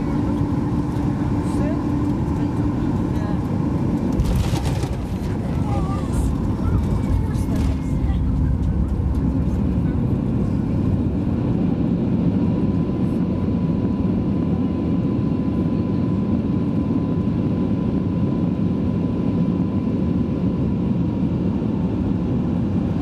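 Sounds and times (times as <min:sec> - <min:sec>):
airplane cabin heavy rumble: 0:00.0 - 0:16.8.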